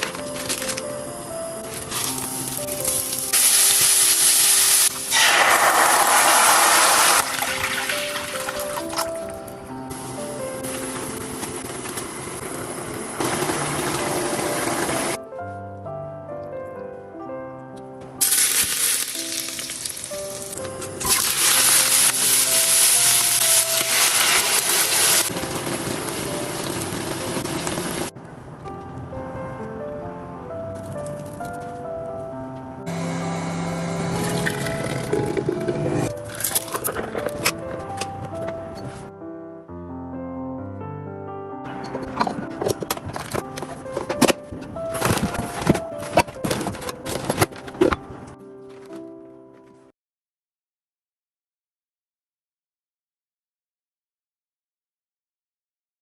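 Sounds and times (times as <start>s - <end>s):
soft background music: 0.0s - 49.9s
food sizzling in hot oil: 2.4s - 8.6s, 18.2s - 28.1s.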